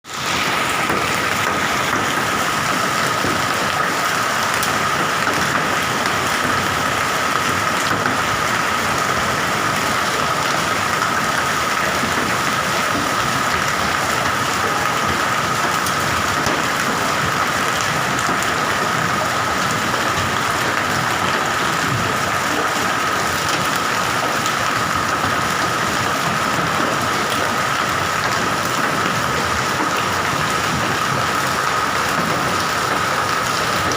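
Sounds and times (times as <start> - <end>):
hail and heavy rain pelting: 0.1 - 33.9.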